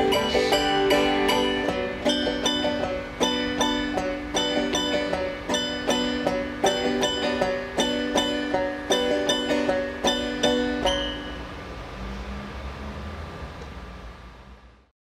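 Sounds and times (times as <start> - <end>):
banjo picking: 0.0 - 11.9.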